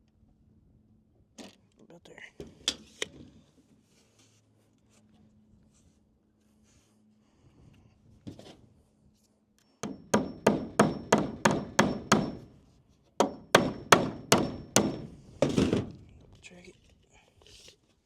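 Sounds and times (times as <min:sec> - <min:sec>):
hammer driving nails into wood: 0:09.8 - 0:12.5, 0:13.2 - 0:16.0.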